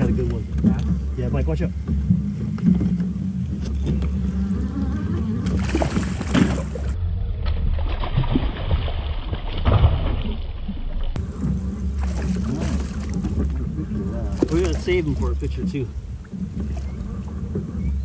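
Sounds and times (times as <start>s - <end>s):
low rumble: 0.0s - 18.0s
fish splashing at water surface: 5.4s - 15.6s.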